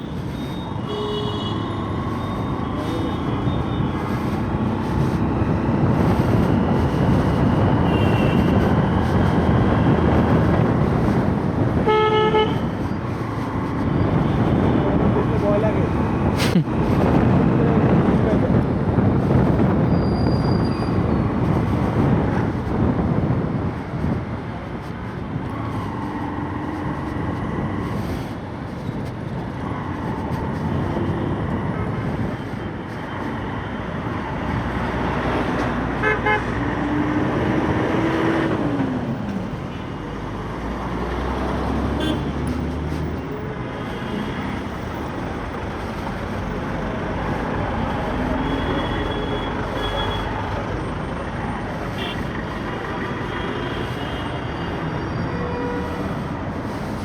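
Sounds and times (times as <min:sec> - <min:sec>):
motorcycle engine and road rumble: 0:00.0 - 0:57.0
vehicle horns honking: 0:00.6 - 0:02.0, 0:07.8 - 0:08.7, 0:11.8 - 0:12.6, 0:36.0 - 0:36.5, 0:41.9 - 0:42.4, 0:52.0 - 0:52.3.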